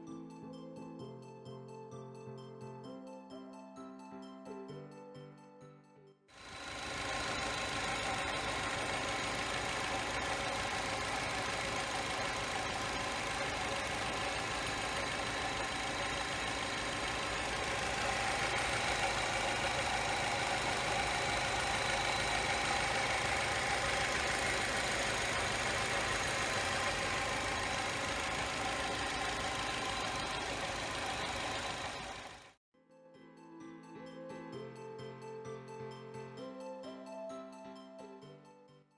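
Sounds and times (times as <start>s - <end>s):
car engine idling: 6.4s - 32.6s.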